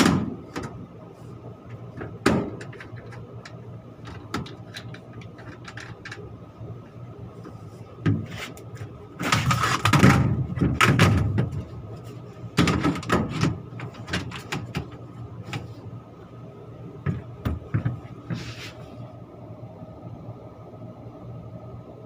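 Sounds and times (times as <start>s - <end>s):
metal panels clattering and scraping: 0.0s - 0.9s, 1.7s - 6.3s, 7.5s - 15.9s
machine hum: 0.0s - 22.0s.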